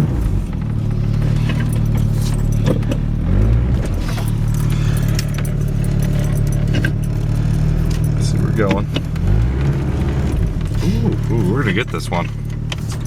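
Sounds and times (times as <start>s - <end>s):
truck engine under load: 0.0s - 13.0s
light clicks and jingles: 1.2s - 3.1s, 3.9s - 9.3s.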